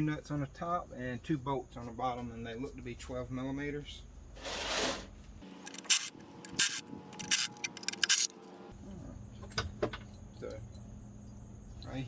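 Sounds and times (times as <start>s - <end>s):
ratchet wrench clicking: 5.7s - 8.3s.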